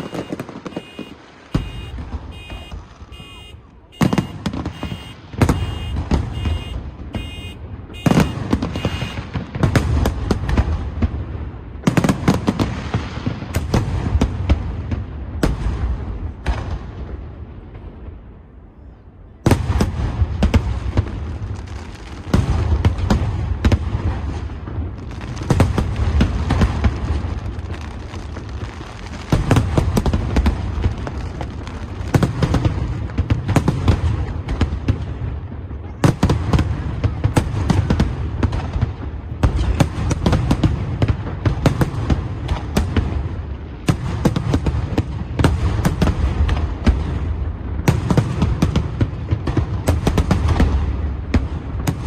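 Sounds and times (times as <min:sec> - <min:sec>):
fireworks bursting and crackling: 0:00.0 - 0:18.3, 0:19.4 - 0:52.0.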